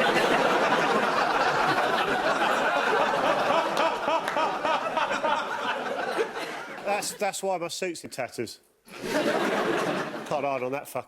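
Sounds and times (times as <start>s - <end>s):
audience laughing: 0.0s - 7.3s, 8.9s - 10.4s.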